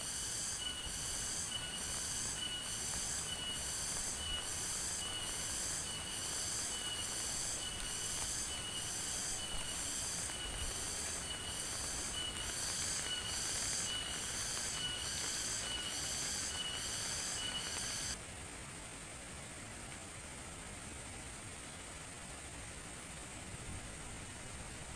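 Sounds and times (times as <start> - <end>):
high-pitched insect chorus pulsing: 0.0 - 18.2
rain hiss: 0.0 - 18.5.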